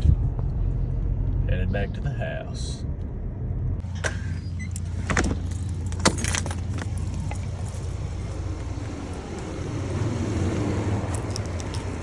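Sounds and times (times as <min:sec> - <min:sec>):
truck engine humming: 0:00.0 - 0:12.0
metallic jingles and clicks: 0:03.8 - 0:12.0.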